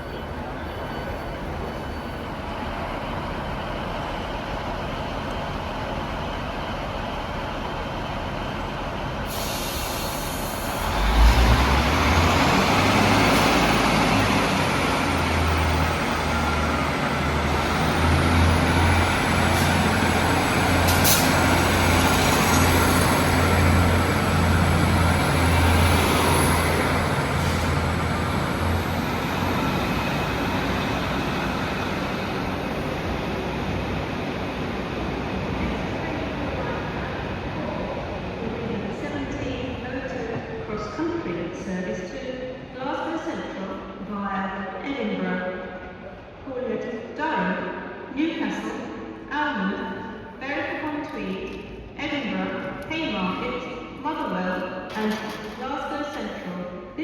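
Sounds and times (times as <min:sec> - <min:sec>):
train engine drone with whine: 0:00.0 - 0:40.6.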